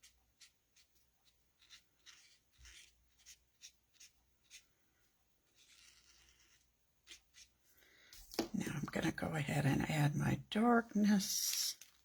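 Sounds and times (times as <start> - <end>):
marker scratching on cardstock: 0.0 - 4.8, 5.4 - 7.6.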